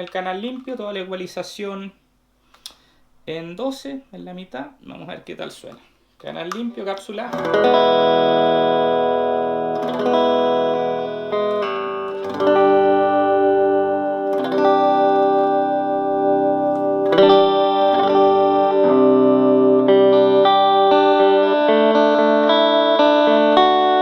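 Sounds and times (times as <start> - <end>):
electric guitar chords ringing: 6.4 - 24.0.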